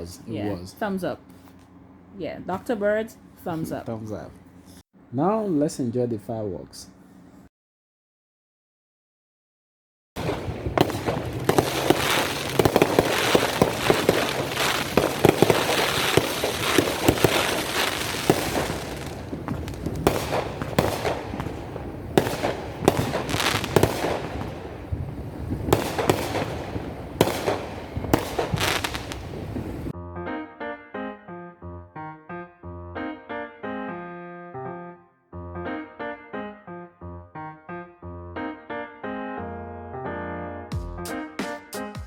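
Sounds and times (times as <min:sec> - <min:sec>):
fireworks crackling and banging: 0:10.2 - 0:29.9
piano music: 0:10.2 - 0:42.0.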